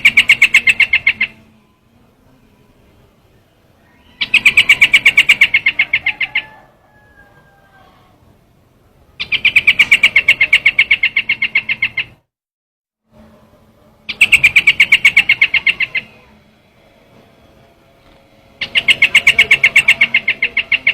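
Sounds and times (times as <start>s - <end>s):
bird calling in sharp notes: 0.0s - 1.7s, 3.8s - 7.2s, 9.2s - 12.2s, 14.1s - 16.4s, 18.5s - 20.9s.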